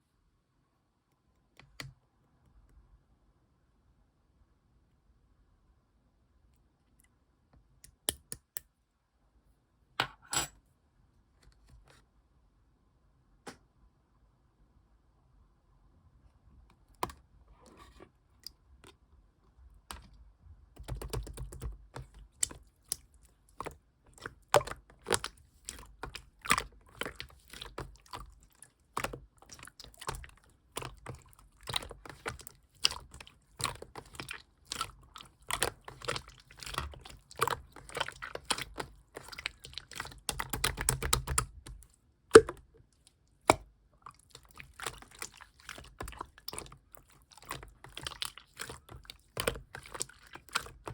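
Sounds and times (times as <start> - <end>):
slime squished by hand: 20.8 - 42.7.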